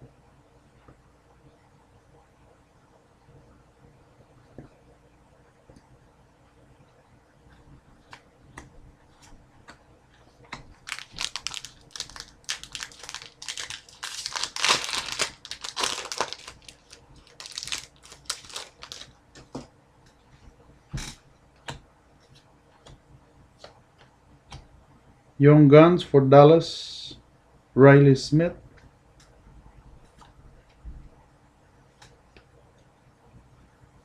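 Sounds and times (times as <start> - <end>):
foil wrapper crinkling: 10.8 - 19.2.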